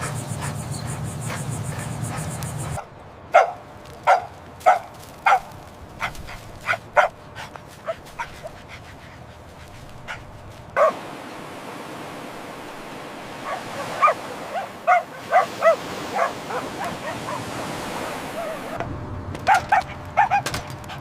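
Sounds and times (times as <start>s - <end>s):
puppy yapping: 10.8s - 11.0s, 19.5s - 20.6s.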